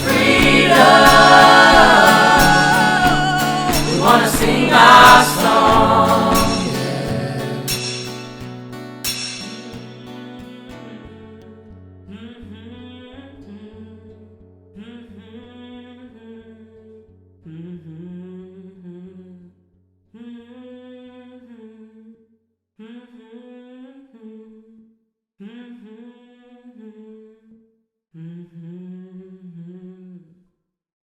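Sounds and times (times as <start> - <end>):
hummed vocal harmony: 0.0 - 8.2.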